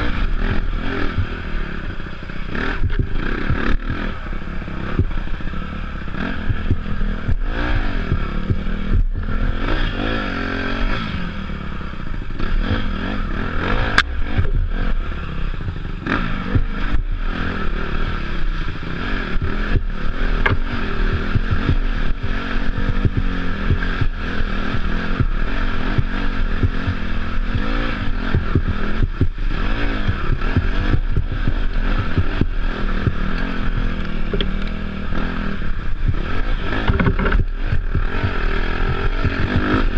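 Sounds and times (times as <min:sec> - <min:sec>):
dirt bike engine revving: 0:00.0 - 0:39.9
bike knocks and rattles: 0:19.4 - 0:24.2, 0:26.0 - 0:39.9.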